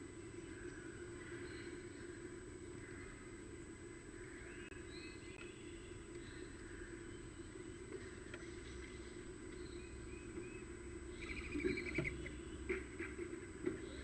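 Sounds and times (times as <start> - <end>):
songbirds chirping: 0.0 - 14.0
steady low hum: 0.0 - 14.0
bird trill: 8.4 - 13.2.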